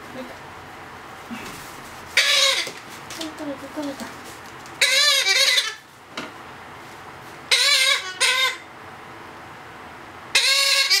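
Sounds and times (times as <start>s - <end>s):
parrot chick begging calls: 2.2s - 2.7s, 4.8s - 5.8s, 7.5s - 8.7s, 10.3s - 11.0s.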